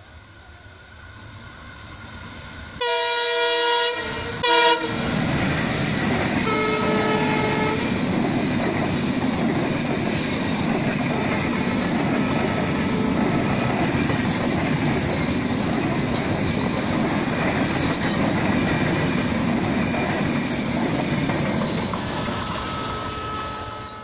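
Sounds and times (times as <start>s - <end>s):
train coaches passing: 0.0s - 24.0s
locomotive horn blasts: 2.8s - 5.1s, 6.4s - 7.9s, 22.6s - 24.0s.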